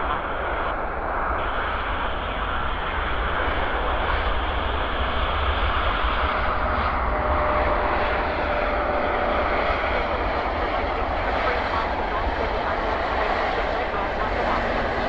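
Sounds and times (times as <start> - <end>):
faint whine: 0.0 - 15.0
jet engines running: 0.0 - 15.0
wind buffeting microphone: 0.0 - 15.0.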